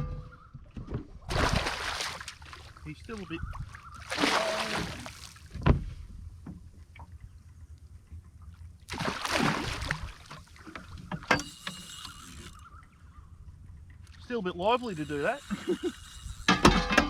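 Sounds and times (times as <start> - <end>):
fish splashing: 1.3 - 5.5, 8.9 - 12.6, 14.8 - 16.4.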